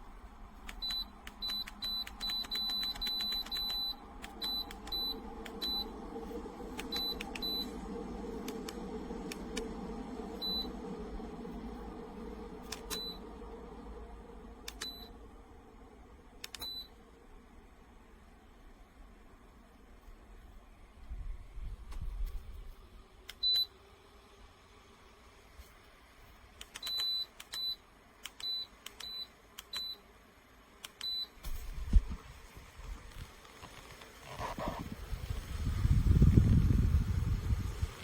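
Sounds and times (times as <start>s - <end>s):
heater beeping: 0.0s - 17.1s, 23.3s - 23.8s, 26.6s - 30.0s, 30.8s - 31.5s
heater fan rushing: 0.0s - 29.6s, 30.4s - 38.0s.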